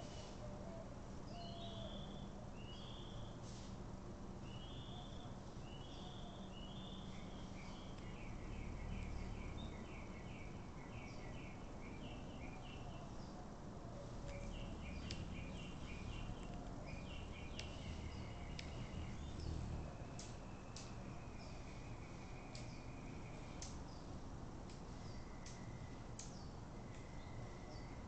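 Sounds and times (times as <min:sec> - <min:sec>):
low steady background noise: 0:00.0 - 0:28.0
bird chirping: 0:01.3 - 0:03.4, 0:04.4 - 0:13.4, 0:14.0 - 0:24.2
sharp clicks: 0:17.5 - 0:17.8, 0:18.5 - 0:18.8.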